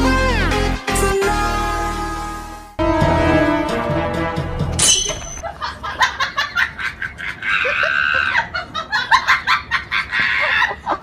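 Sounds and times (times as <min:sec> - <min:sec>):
background music: 0:00.0 - 0:05.4
person laughing: 0:05.4 - 0:11.0.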